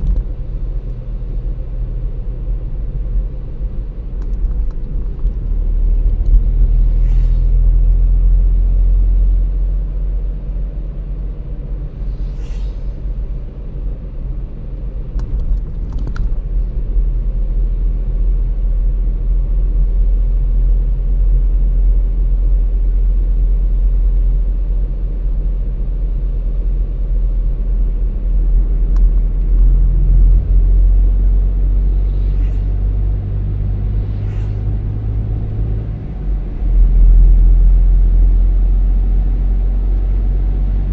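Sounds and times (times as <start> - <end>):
car engine and tyres rumbling: 0.0 - 40.9
faint brief hisses: 7.0 - 7.6, 12.0 - 13.4, 34.1 - 35.1.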